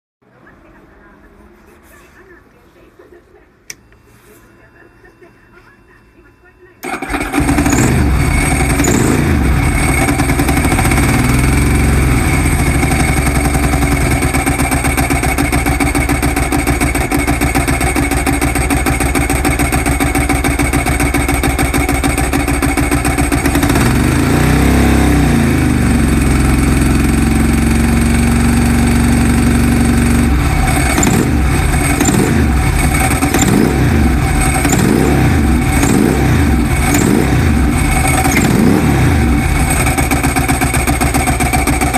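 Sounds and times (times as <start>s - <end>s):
motorcycle engine revving: 6.8s - 41.9s.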